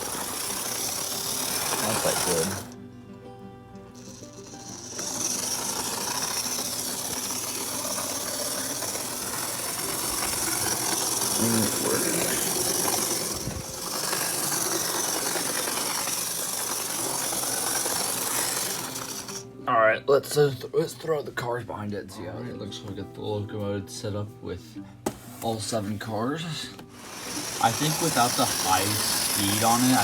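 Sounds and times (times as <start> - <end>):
model locomotive running on track: 0.0 - 2.8, 4.0 - 19.4, 27.0 - 30.0.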